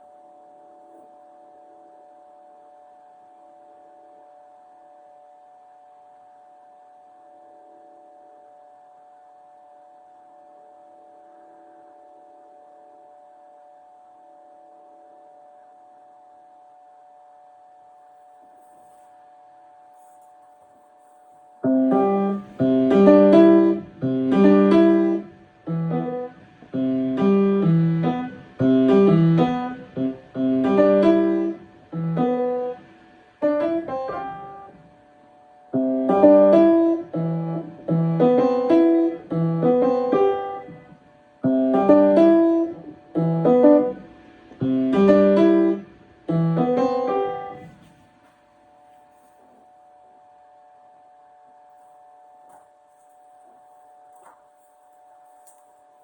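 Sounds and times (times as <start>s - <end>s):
piano chordal phrases: 21.6s - 34.9s, 35.7s - 47.8s.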